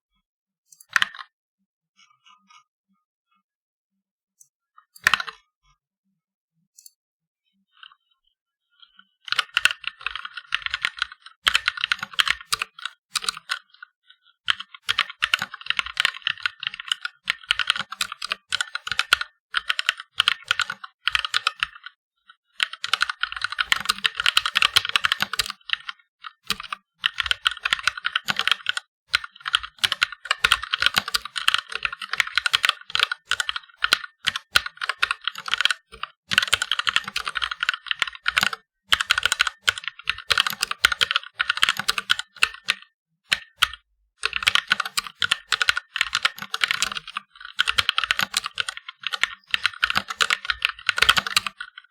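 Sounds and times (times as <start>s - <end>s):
mechanical keyboard typing: 9.3s - 13.8s, 14.5s - 21.9s, 22.6s - 51.9s.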